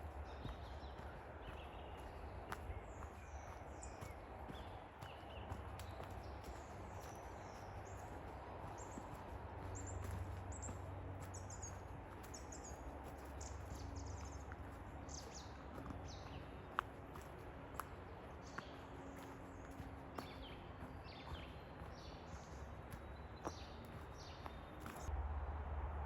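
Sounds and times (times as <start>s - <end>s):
forest birds chirping: 0.0s - 25.1s
steady low rumble: 25.0s - 26.0s.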